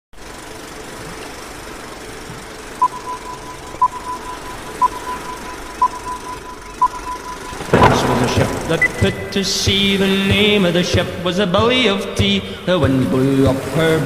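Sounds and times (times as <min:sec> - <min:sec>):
sharp beeps: 0:02.8 - 0:09.4
high electronic tone: 0:02.8 - 0:09.8.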